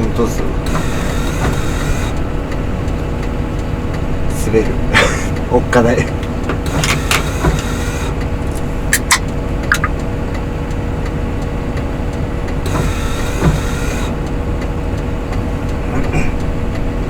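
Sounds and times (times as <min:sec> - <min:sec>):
road noise on snow: 0:00.0 - 0:17.0
vehicle engine running: 0:00.0 - 0:17.0
short clicks: 0:08.6 - 0:10.0.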